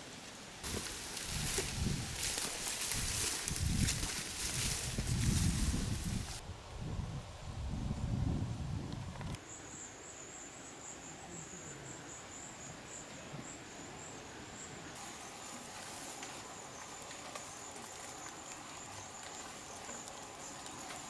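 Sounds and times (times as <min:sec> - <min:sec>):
insect trilling: 0:15.0 - 0:21.0.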